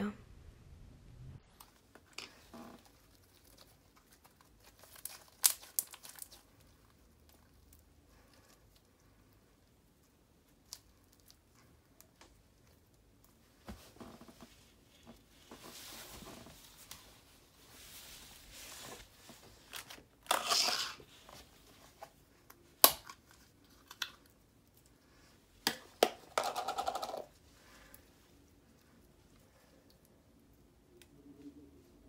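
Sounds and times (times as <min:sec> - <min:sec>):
sticky crinkly slime tearing: 0:02.8 - 0:07.8.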